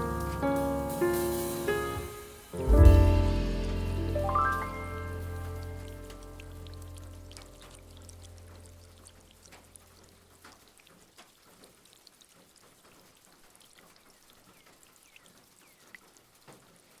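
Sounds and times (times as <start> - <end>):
background jazz music: 0.0 - 9.4
fireplace crackling: 0.0 - 14.2
rain: 0.0 - 17.0.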